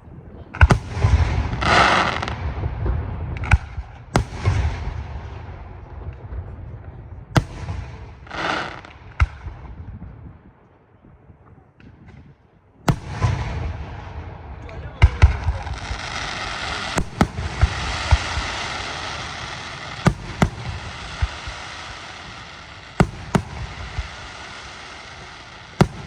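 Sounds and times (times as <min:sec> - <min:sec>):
firework bangs with rumbling echo: 0:00.5 - 0:10.6, 0:11.8 - 0:26.0
firework crackling hiss: 0:00.7 - 0:02.4, 0:07.4 - 0:09.0, 0:15.3 - 0:26.0.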